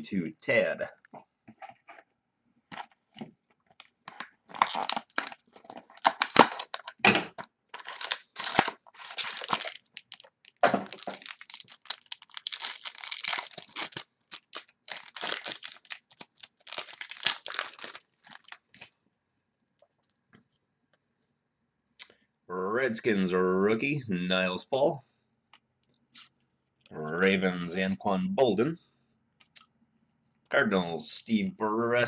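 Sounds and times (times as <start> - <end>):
wrapper tearing and crinkling: 3.7 - 7.0, 7.7 - 18.9.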